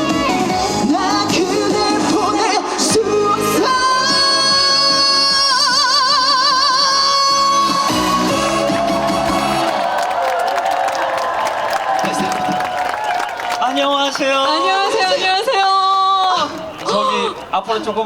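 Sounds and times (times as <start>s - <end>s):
woman singing: 0.0s - 8.7s
backing track music: 0.0s - 13.3s.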